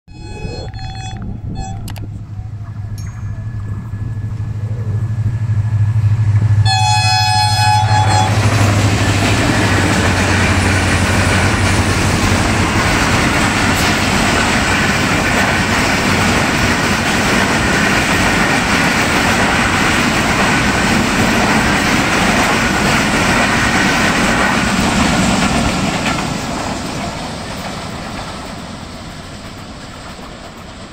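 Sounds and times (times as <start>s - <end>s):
train horn blast: 0.1s - 12.9s
train wheels clattering on rails: 5.7s - 30.9s.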